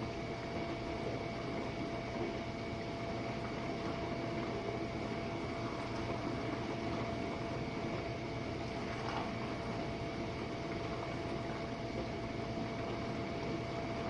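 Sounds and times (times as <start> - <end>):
dishwasher motor hum: 0.0 - 14.0
water rushing in dishwasher: 8.7 - 9.9.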